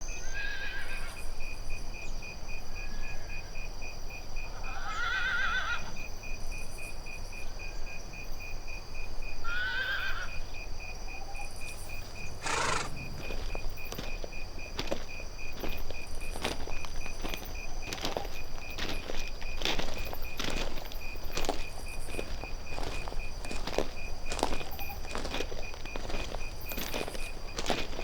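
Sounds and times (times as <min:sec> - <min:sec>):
horse whinnying: 0:04.7 - 0:05.9, 0:09.5 - 0:10.3, 0:12.4 - 0:13.3.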